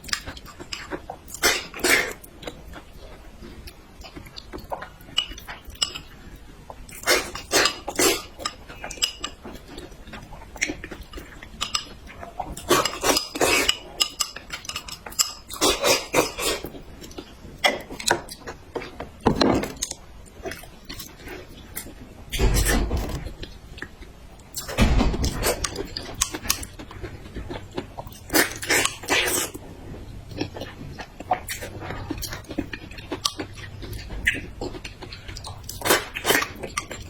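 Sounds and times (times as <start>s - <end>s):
utensils clinking against dishes: 7.0s - 9.8s, 10.6s - 12.0s, 12.6s - 16.7s.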